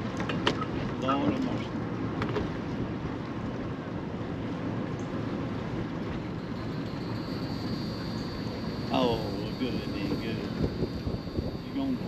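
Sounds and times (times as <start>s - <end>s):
low rumbling noise: 1.6s - 12.0s
faint thin high tone: 6.4s - 12.0s.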